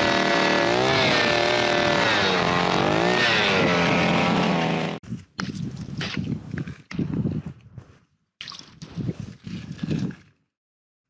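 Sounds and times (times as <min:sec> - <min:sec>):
ice auger engine drilling: 0:00.0 - 0:05.0.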